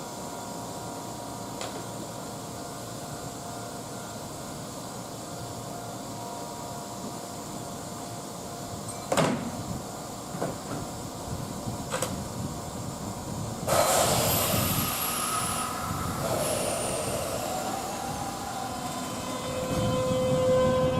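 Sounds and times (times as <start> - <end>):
train passing with wheel clatter: 6.7 - 20.9.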